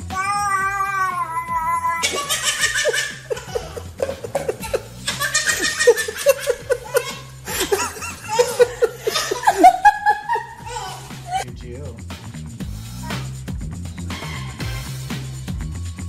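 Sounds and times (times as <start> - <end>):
baby laughing: 0.2 - 11.5.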